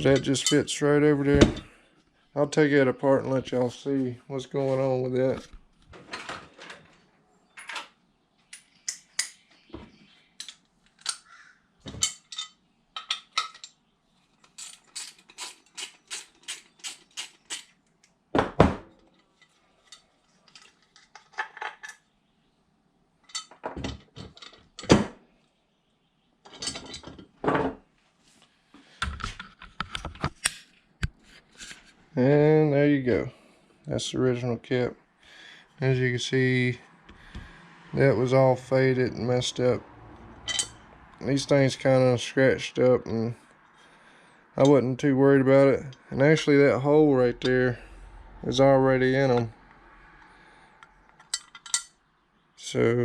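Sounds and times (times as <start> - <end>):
small metal parts clinking: 12.0 - 17.8, 19.0 - 22.0, 40.5 - 40.8, 51.2 - 52.0.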